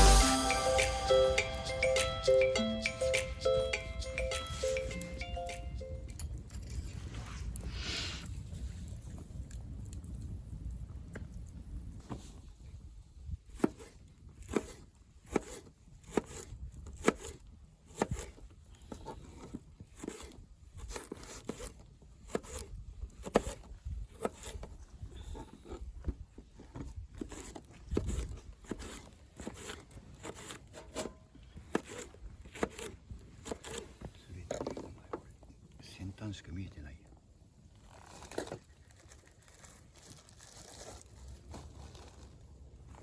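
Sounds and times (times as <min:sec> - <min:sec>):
campfire crackling and popping: 0:03.1 - 0:12.0.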